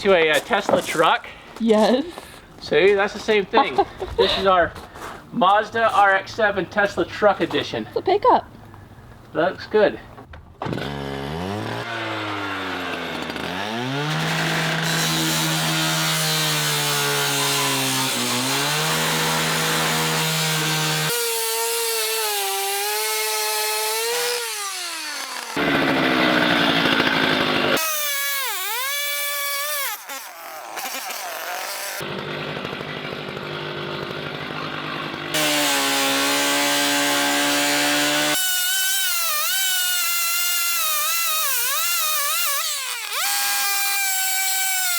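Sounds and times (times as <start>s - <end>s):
power saw cutting sheet metal: 10.7s - 44.9s.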